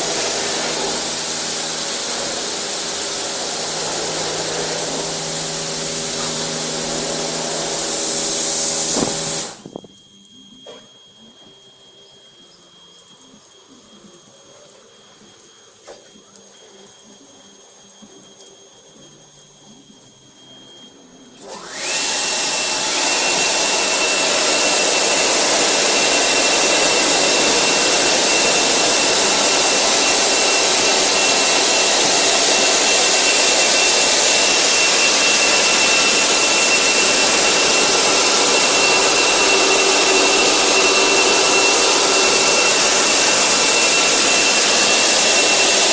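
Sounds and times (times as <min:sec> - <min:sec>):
car wash dryer blowers: 0:00.0 - 0:09.6, 0:21.4 - 0:45.9.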